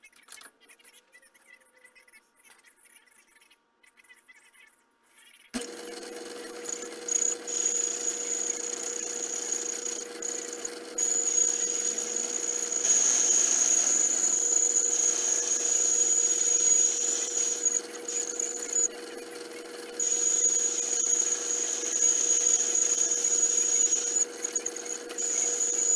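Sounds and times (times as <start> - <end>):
high whine of metal machining: 5.6 - 25.9
machine tool motor running: 5.6 - 25.9.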